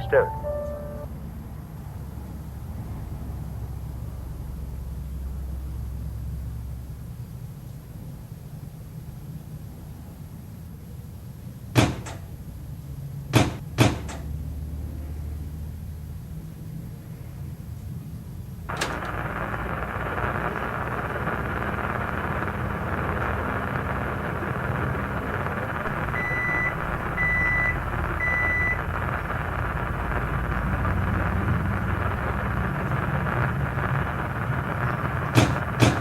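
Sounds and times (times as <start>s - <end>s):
short electronic beeps: 0.0s - 1.1s, 26.1s - 29.0s
microwave oven humming: 0.0s - 1.2s, 11.8s - 14.6s, 18.7s - 36.0s
sharp click: 11.8s - 12.3s, 13.4s - 14.3s, 35.3s - 36.0s.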